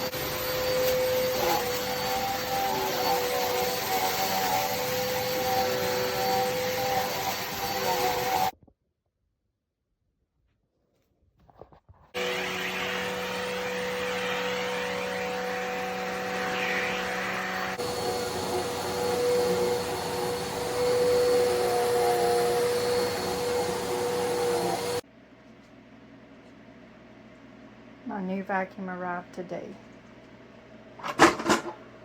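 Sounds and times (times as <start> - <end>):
vacuum cleaner motor whine: 0.0 - 8.5, 12.2 - 25.0.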